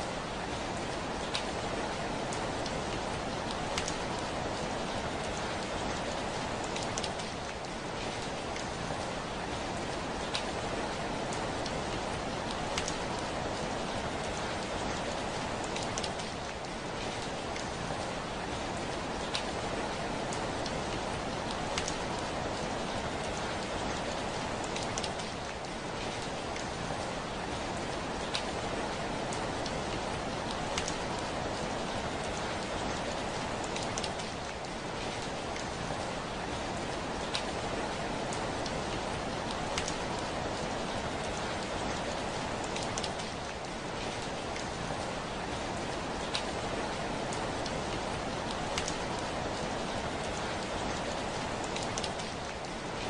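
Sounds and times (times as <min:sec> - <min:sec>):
heavy rain: 0:00.0 - 0:53.0
raindrops ticking on window glass: 0:29.2 - 0:31.4, 0:38.2 - 0:45.0, 0:48.4 - 0:49.4, 0:50.1 - 0:52.7.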